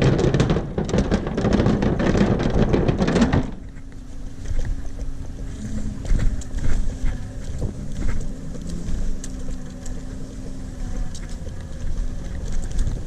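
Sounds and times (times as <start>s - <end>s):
faint steady hum: 0.0s - 13.0s
wind buffeting microphone: 0.0s - 13.0s.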